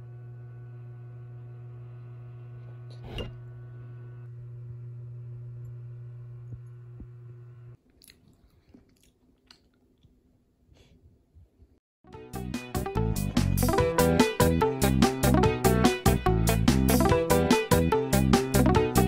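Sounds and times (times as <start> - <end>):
person chewing: 7.8 - 10.3.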